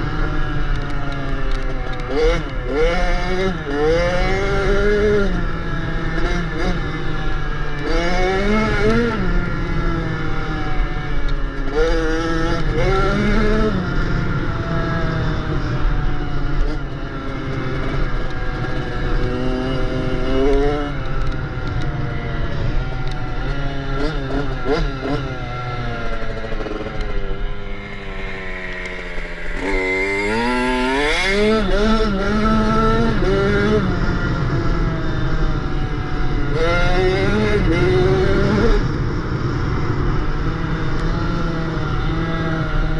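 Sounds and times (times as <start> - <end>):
dirt bike engine revving: 2.1 - 10.1, 16.6 - 21.3, 23.2 - 38.9.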